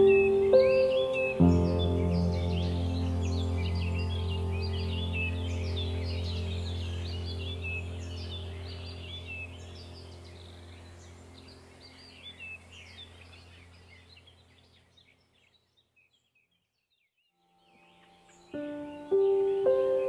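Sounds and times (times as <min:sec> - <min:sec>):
low steady hum: 0:00.0 - 0:14.8
birds chirping: 0:00.0 - 0:20.0.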